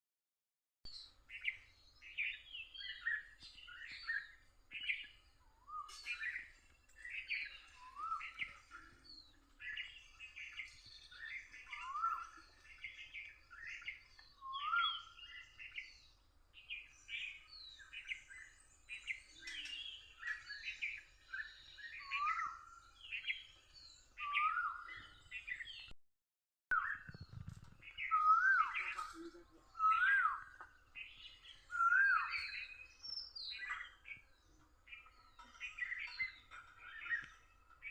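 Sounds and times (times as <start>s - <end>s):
birds chirping and whistling: 0.9s - 26.0s, 26.7s - 37.9s
low rising bird whistle: 28.0s - 28.8s, 31.6s - 32.8s.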